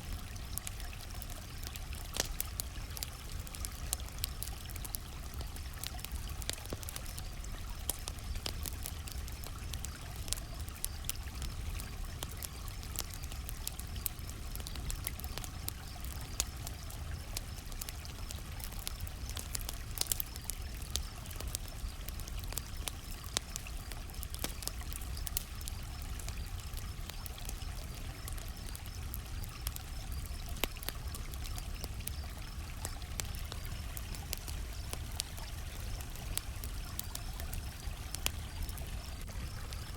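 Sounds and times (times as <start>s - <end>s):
low rumble of flames: 0.0s - 39.9s
wood crackling and popping: 0.0s - 39.9s
crickets chirping: 20.0s - 39.9s.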